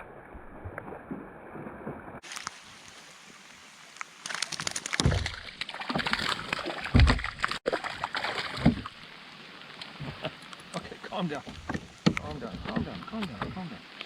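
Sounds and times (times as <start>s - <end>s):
rain drops tapping on kayak: 2.2s - 7.6s, 9.7s - 14.0s
water sloshing: 4.3s - 14.0s.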